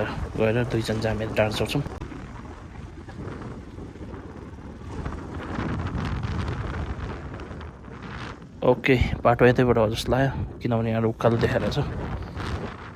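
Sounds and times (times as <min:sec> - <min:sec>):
dirt bike engine running: 0:00.0 - 0:08.6
wind buffeting microphone: 0:00.0 - 0:12.9.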